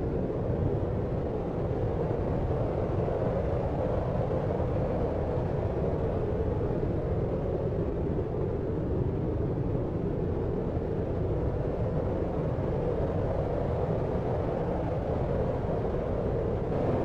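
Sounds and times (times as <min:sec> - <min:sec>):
deep brown noise rumble: 0:16.6 - 0:17.0.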